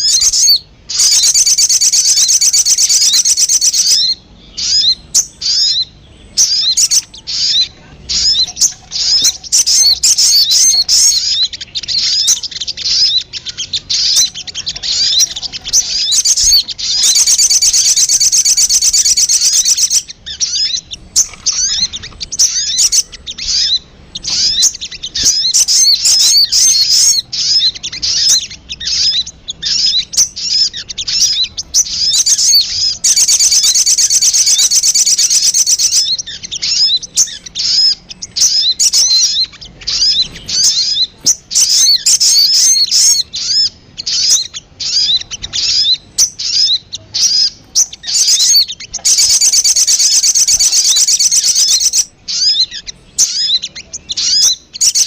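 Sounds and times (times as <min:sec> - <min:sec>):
bird buzzy trill: 0:00.0 - 0:55.0
bird chirping: 0:00.0 - 0:55.0.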